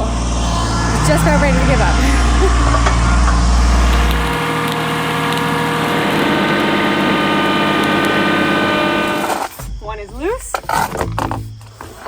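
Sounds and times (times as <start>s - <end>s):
deep rumble: 0.0s - 9.5s
tractor engine humming: 0.0s - 9.5s.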